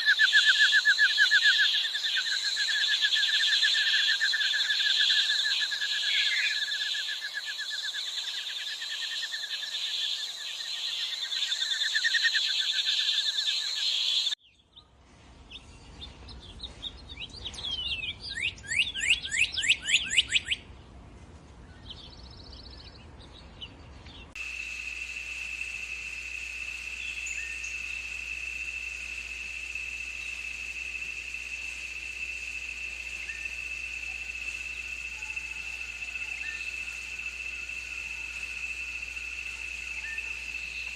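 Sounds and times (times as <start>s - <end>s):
high insect drone: 0.0s - 14.4s, 24.4s - 40.9s.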